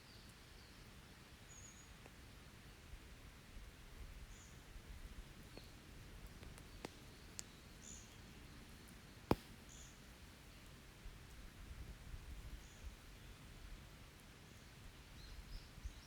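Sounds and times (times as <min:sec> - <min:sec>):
campfire crackling: 0:04.8 - 0:11.4.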